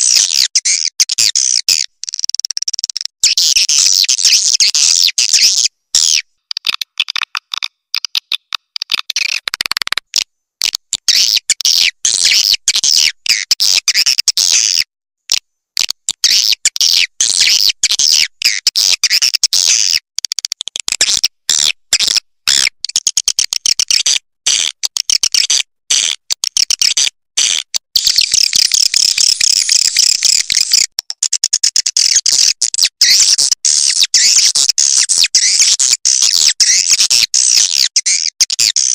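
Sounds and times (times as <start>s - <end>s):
swiftlets twittering: 28.0s - 30.9s.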